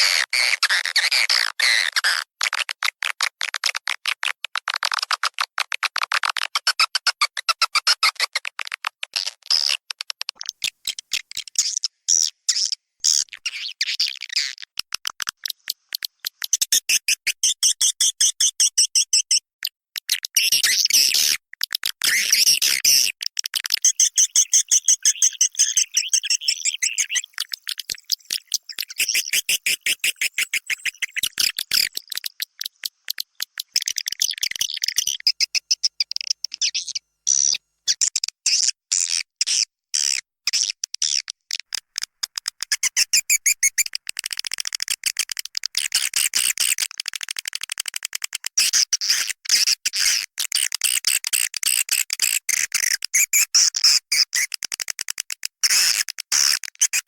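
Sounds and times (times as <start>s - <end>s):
swiftlet chirps and twitters: 22.0s - 38.0s, 42.7s - 44.7s.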